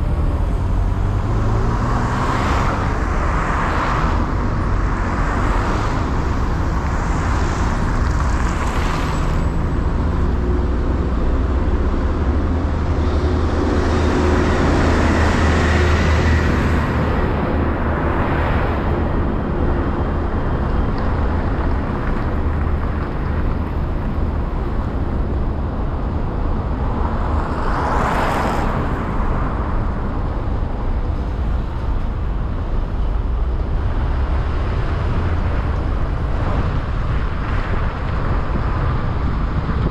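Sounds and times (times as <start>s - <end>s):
traffic rumble: 0.0s - 39.9s
vehicles passing close by: 0.0s - 39.9s.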